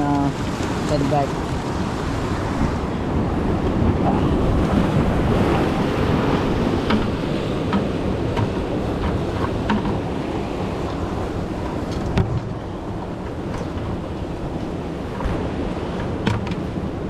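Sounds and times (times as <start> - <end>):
ocean surf: 0.0 - 17.0
wind buffeting microphone: 0.0 - 17.0.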